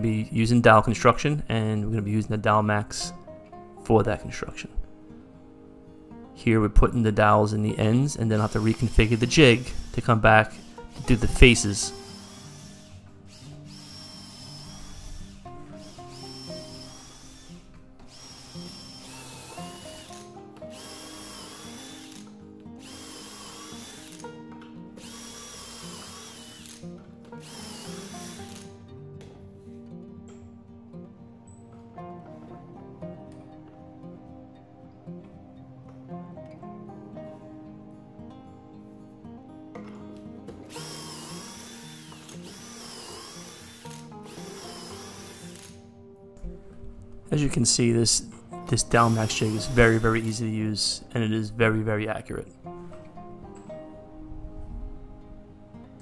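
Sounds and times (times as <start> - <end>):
quiet guitar music: 0.0 - 56.0
cordless drill boring into wood: 8.3 - 24.4, 25.0 - 28.8, 40.6 - 45.8, 48.9 - 50.4.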